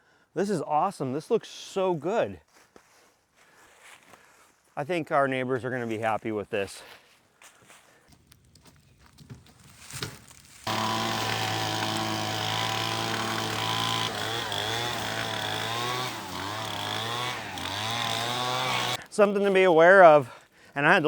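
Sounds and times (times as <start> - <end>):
small two-stroke engine running: 10.7 - 19.0.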